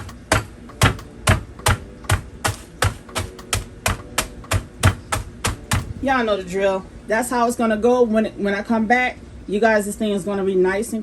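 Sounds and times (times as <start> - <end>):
meat tenderizer pounding cookies: 0.0 - 6.1.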